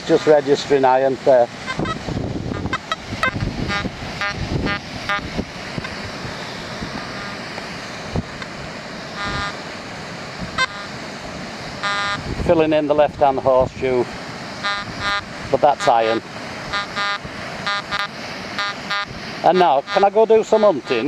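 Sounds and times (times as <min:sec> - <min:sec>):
metal detector beeping: 0:01.7 - 0:05.3, 0:09.2 - 0:09.6, 0:10.6 - 0:10.9, 0:11.8 - 0:12.2, 0:14.6 - 0:21.0.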